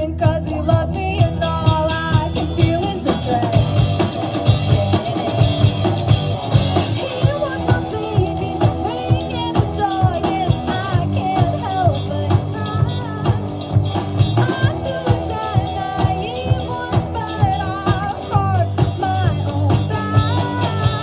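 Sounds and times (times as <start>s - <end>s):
drums steady beat: 0.0s - 21.0s
guitar: 0.0s - 21.0s
person singing: 6.8s - 21.0s.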